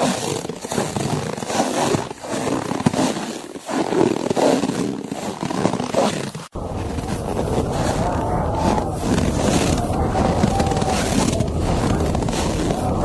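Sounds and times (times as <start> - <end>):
wind rushing: 6.6 - 13.0.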